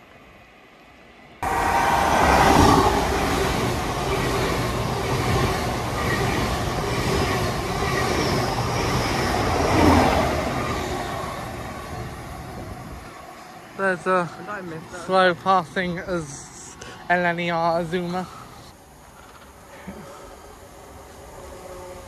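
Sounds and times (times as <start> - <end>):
train wheels rumbling on rail: 1.4 - 13.6.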